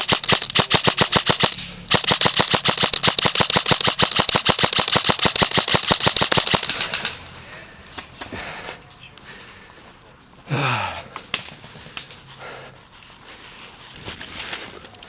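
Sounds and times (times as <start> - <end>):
airsoft gun firing full-auto: 0.0 - 7.1.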